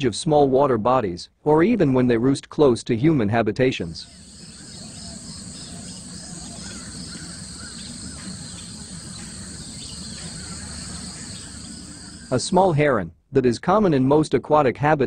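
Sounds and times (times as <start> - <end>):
faint bird calls: 4.0 - 12.4
pulsing insect trill: 4.0 - 12.5.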